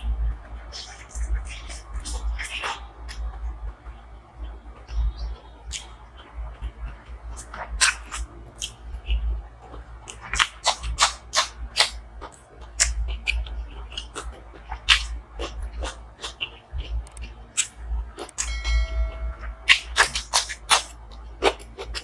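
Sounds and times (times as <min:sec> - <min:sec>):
person chewing and smacking food: 0:07.4 - 0:18.5
steady low hum: 0:13.0 - 0:22.0.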